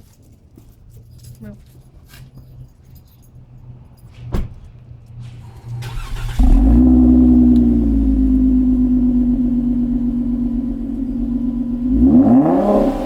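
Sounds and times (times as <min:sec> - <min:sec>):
car engine starting and idling: 0:03.3 - 0:13.0.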